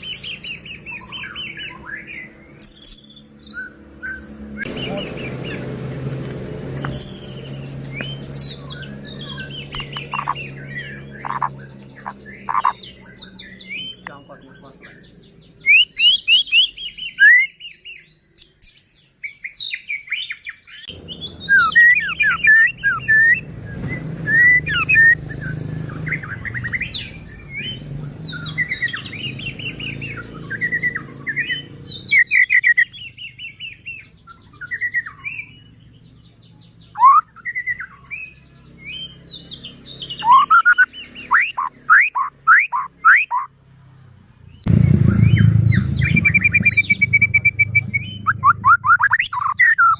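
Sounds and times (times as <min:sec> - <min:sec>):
songbird whistling song: 0:00.0 - 0:43.5, 0:44.5 - 0:49.9
low background rumble: 0:44.5 - 0:49.5.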